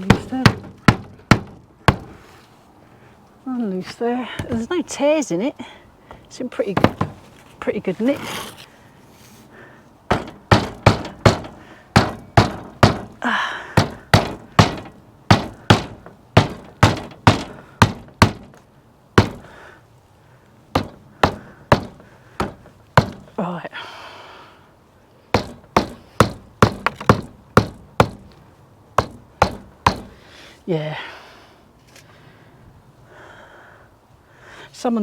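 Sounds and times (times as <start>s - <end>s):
hammer knocking roof tacks: 0.0s - 2.1s, 10.1s - 13.2s, 13.8s - 18.6s, 19.2s - 19.6s, 20.7s - 23.3s, 25.4s - 28.4s, 29.0s - 30.2s.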